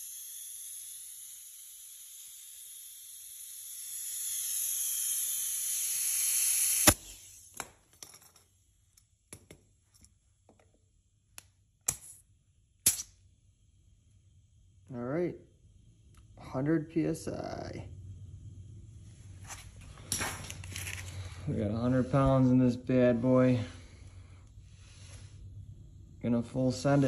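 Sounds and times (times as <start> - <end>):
compressed air hissing into tire: 0.8 - 7.5, 23.6 - 25.7.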